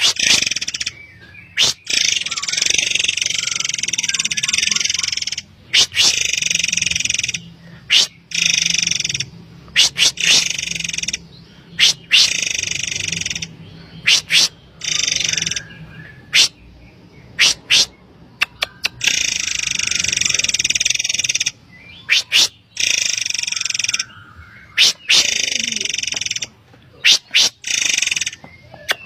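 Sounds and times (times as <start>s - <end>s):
bird high whistled notes: 0.0s - 6.2s
bird harsh rasping calls: 0.0s - 29.0s.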